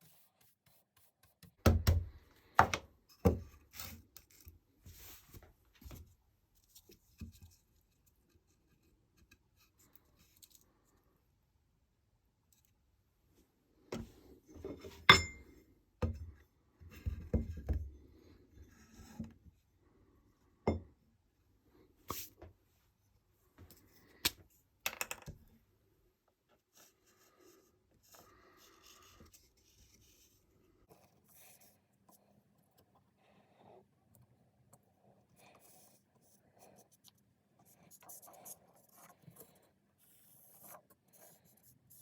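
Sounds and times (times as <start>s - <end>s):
sharp knocks and clinks: 15.1s - 15.5s.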